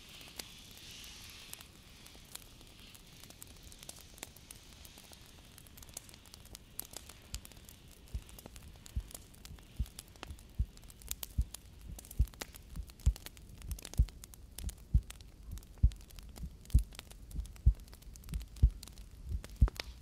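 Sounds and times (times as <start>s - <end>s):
soft crackling: 0.0s - 20.0s
heartbeat thumping: 11.4s - 19.9s.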